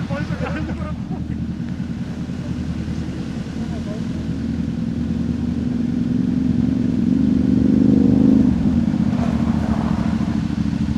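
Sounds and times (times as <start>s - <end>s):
motorcycle engine under throttle: 5.2s - 10.9s.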